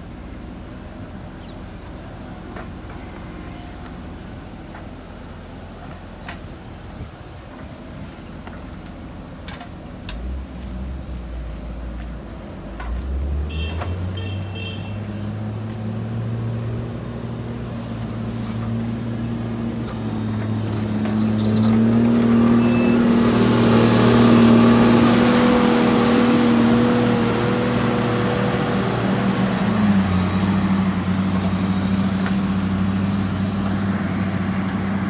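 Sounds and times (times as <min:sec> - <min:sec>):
diesel engine revving: 0:12.5 - 0:35.0.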